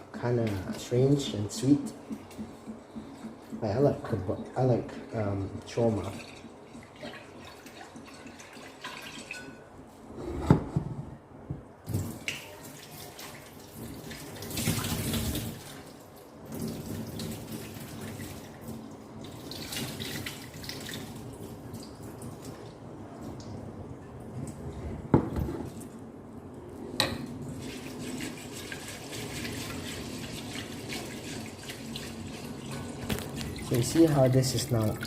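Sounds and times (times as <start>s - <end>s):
tap water running into pot: 27.6s - 35.0s.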